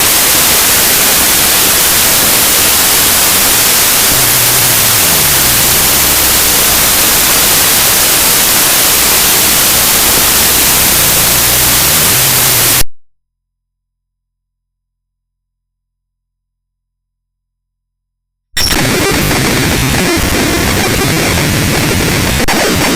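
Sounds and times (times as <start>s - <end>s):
harsh static noise: 0.0s - 12.9s, 18.6s - 22.9s.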